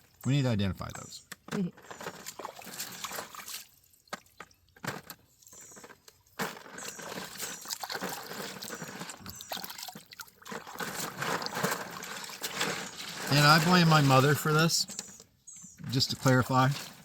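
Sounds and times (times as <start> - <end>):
water pouring and trickling: 1.9 - 4.8, 6.4 - 14.8.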